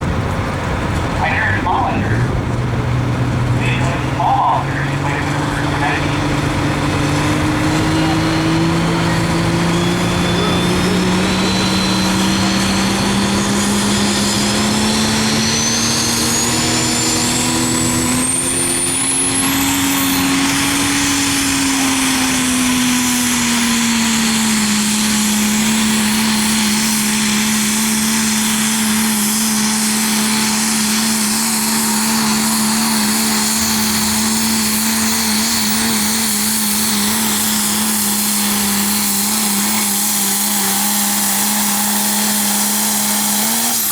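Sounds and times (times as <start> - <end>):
truck engine under load: 0.0 - 43.9
thin high whine: 3.6 - 22.8.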